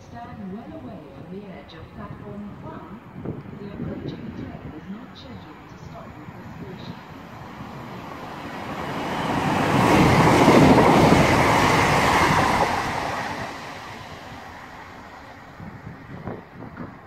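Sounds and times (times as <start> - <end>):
train passing at speed: 0.0 - 17.0.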